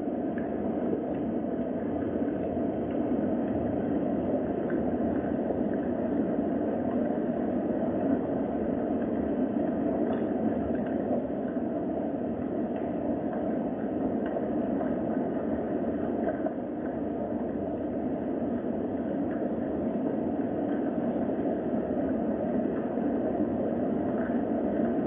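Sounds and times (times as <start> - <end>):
raindrop ticks: 4.5 - 7.5, 9.0 - 23.0.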